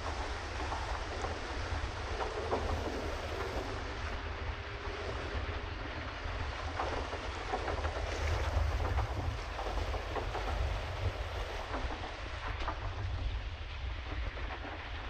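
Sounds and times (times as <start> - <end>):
water splashing around boat: 0.0 - 15.0
wind rumbling on microphone: 0.0 - 15.0.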